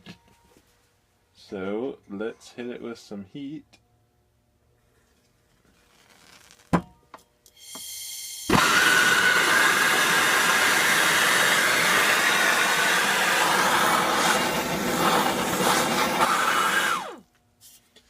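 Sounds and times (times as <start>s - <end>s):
heat gun blowing with whine: 7.6s - 17.2s.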